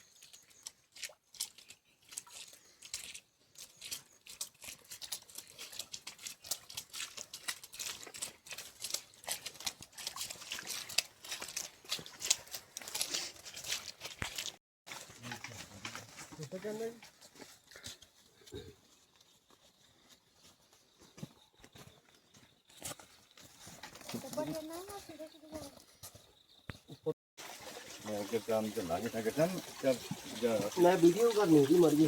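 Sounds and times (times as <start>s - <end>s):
footsteps crunching on dry leaves: 1.4s - 25.4s.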